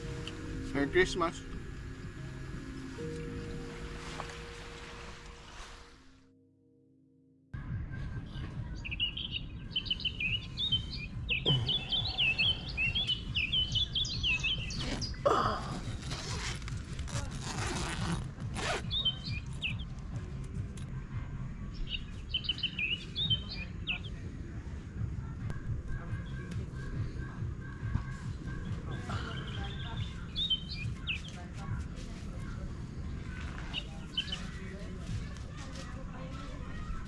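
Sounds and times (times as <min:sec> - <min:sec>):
low outdoor rumble: 0:00.0 - 0:06.3, 0:07.6 - 0:37.0
rustling noise: 0:03.5 - 0:06.2
birds twittering: 0:08.3 - 0:16.6, 0:18.6 - 0:20.0, 0:21.7 - 0:24.3, 0:25.5 - 0:31.5, 0:32.4 - 0:35.4.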